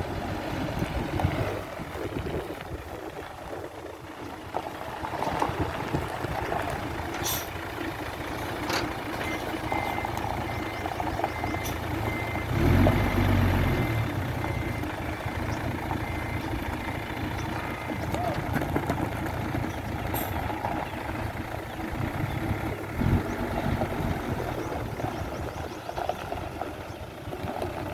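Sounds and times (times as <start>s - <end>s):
diesel engine running: 0.0s - 27.9s
backup alarm beeping: 9.2s - 14.9s.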